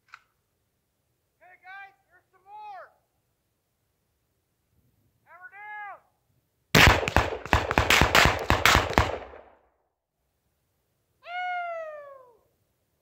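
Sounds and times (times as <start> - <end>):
distant rifle shots: 6.8 - 9.6.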